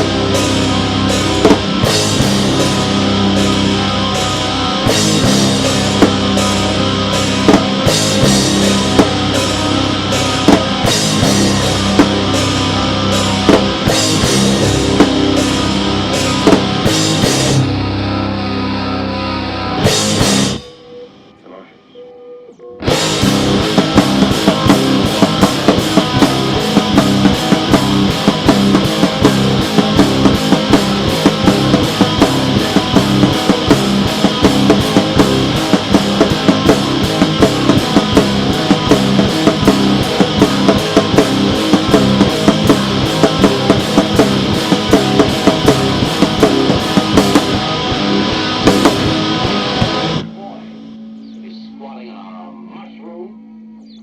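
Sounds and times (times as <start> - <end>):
fast drum beat: 0.0 - 17.6, 19.8 - 20.6, 22.9 - 50.3
loud rock music: 0.0 - 21.4, 22.8 - 52.5
distorted electric guitar: 0.0 - 54.0.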